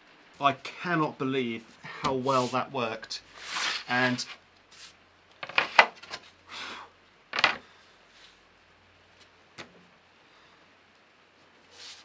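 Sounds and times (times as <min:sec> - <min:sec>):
brushing scrape: 0:02.2 - 0:02.6, 0:03.3 - 0:05.0, 0:11.7 - 0:12.0
wooden boards clacking: 0:05.4 - 0:06.2, 0:07.4 - 0:07.6.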